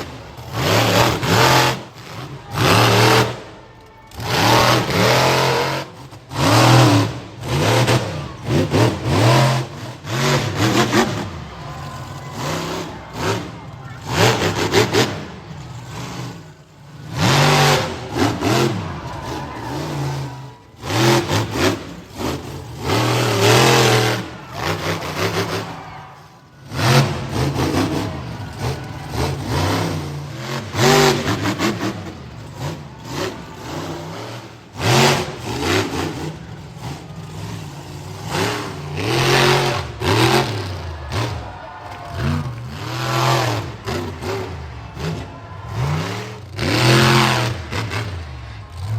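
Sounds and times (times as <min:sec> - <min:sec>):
monster truck engine revving: 0:00.0 - 0:48.9.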